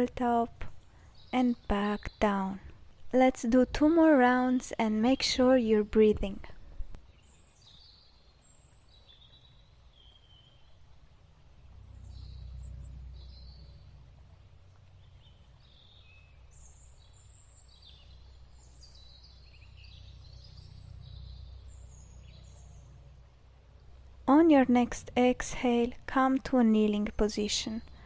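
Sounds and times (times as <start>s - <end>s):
birds chirping and trilling: 0.0s - 6.4s, 7.0s - 11.0s, 11.6s - 28.0s
low rumble: 9.7s - 26.1s.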